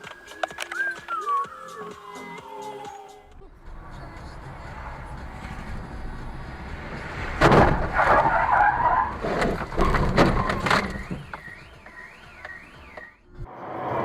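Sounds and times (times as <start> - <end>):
metal scraping and bangs: 5.2 - 11.4
car crash impact: 6.7 - 11.4.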